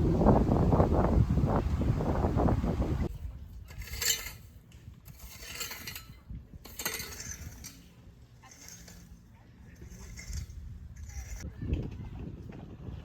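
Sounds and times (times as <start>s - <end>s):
wind buffeting microphone: 0.0s - 4.0s, 10.0s - 13.0s.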